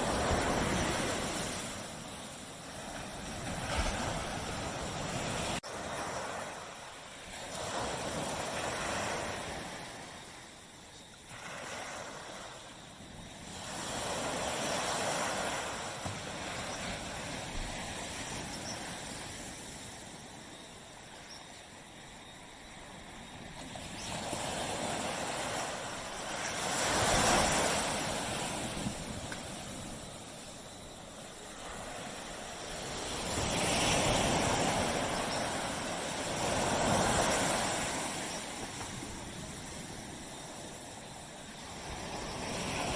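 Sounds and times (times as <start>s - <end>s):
surf washing onto beach: 0.0s - 10.6s, 23.6s - 42.9s.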